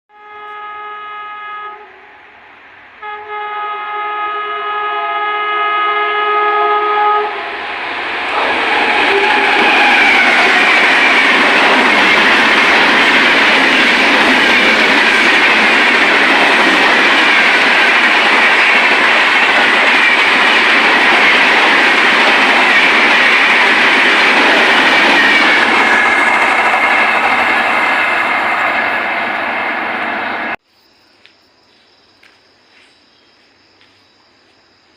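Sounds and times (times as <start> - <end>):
train horn blasts: 0.1 - 2.4, 3.0 - 7.6
wheels rushing on rails: 7.2 - 30.6
train clickety-clack: 7.4 - 30.4.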